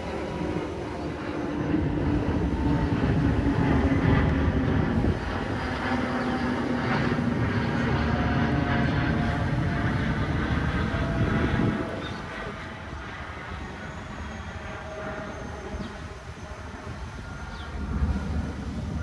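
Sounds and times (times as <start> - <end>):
jet airliner rumble overhead: 0.0 - 19.0.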